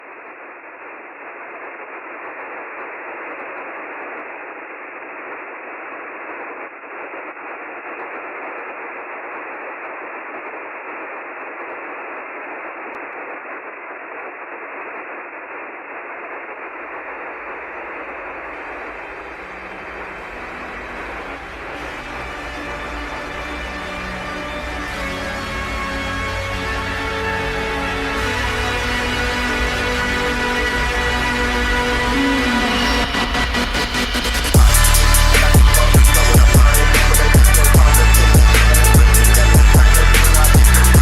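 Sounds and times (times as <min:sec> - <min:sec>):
radio static hiss: 0:00.0 - 0:25.3, 0:27.4 - 0:41.0
music with low bass: 0:19.8 - 0:41.0.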